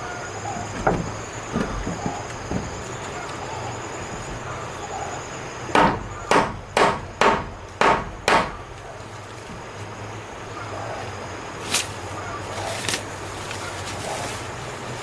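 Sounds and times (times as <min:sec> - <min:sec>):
sharp knocks: 0:00.5 - 0:04.5, 0:05.7 - 0:08.6.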